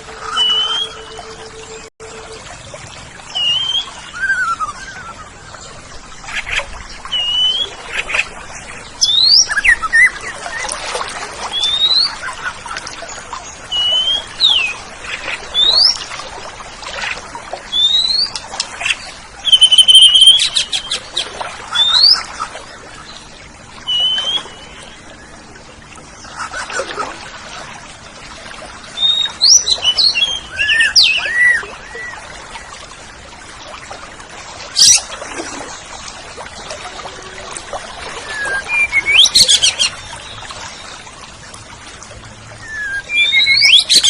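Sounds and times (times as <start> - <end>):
magpie-robin singing: 0.2 - 1.1.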